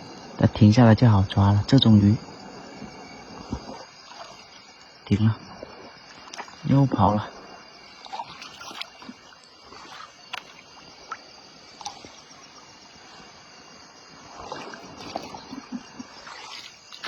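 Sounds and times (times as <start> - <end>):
stream water running: 0.0 - 17.0
water sloshing: 1.8 - 17.0
splashes of wading: 2.1 - 17.0.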